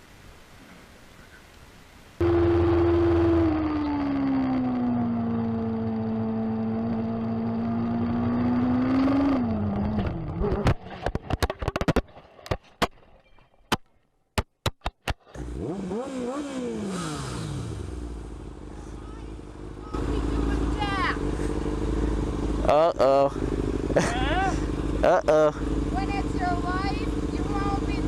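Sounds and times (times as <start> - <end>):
motorcycle engine revving: 2.2 - 11.1, 15.3 - 28.0
sharp clicks and knocks: 9.9 - 15.4.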